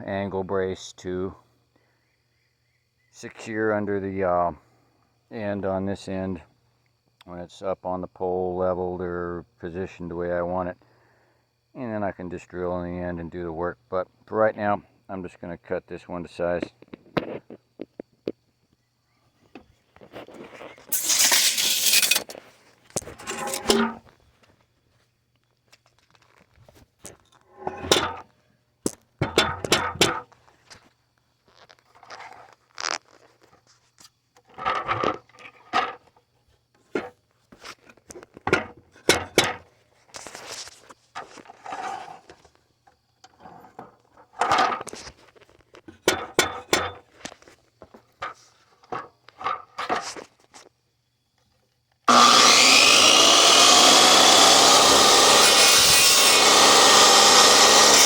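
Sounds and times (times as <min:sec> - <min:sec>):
power tool running: 0:20.9 - 0:22.2, 0:23.2 - 0:24.0, 0:52.1 - 0:58.0
hand sawing wood: 0:52.1 - 0:58.0.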